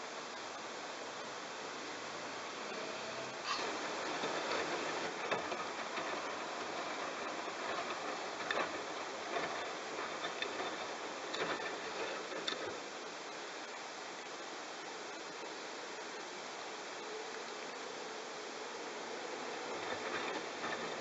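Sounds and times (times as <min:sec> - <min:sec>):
steady hiss: 0:00.0 - 0:21.0
knocks and clicks: 0:03.7 - 0:12.8.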